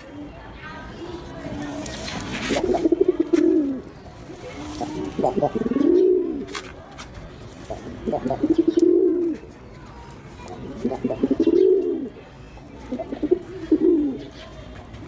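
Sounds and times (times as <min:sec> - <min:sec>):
pigeon cooing: 0:02.4 - 0:06.5, 0:07.7 - 0:09.4, 0:10.6 - 0:12.1, 0:12.9 - 0:14.4.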